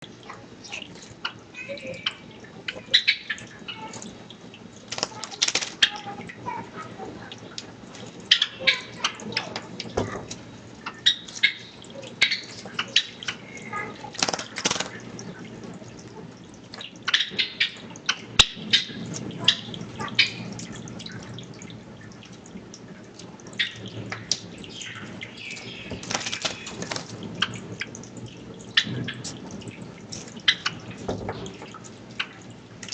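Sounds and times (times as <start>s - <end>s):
birds splashing water: 0.0s - 32.9s.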